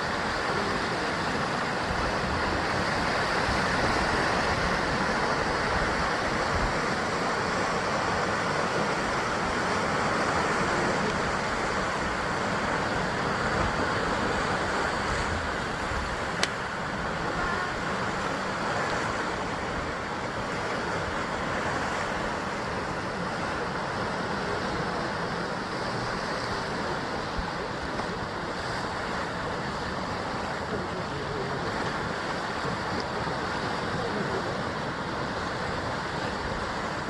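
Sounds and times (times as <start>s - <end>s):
surf breaking on rocky shore: 0.0s - 37.0s.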